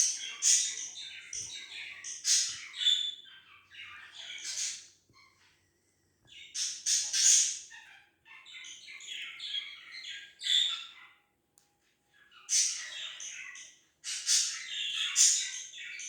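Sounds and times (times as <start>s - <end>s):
cockatiels chirping and squawking: 0.0s - 5.6s, 6.3s - 11.2s, 12.2s - 16.0s.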